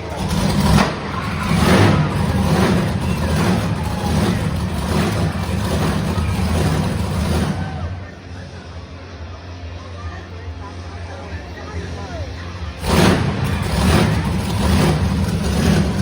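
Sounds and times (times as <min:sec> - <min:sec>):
monster truck engine revving: 0:00.0 - 0:08.7, 0:12.4 - 0:16.0.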